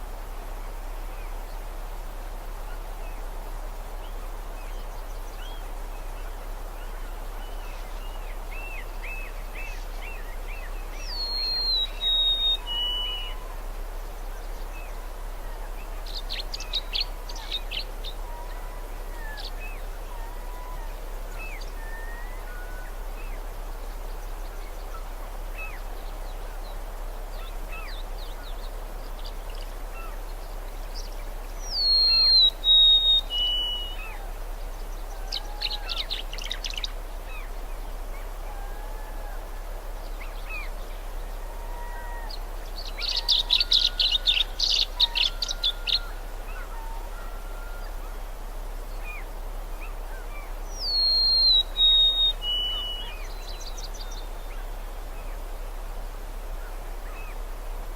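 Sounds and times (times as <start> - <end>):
background hiss: 0.0 - 57.9
falling whistled birdsong: 6.8 - 26.8, 27.4 - 55.6
birds singing and chirping: 7.8 - 13.4, 29.2 - 38.7, 40.0 - 48.0, 48.9 - 54.8.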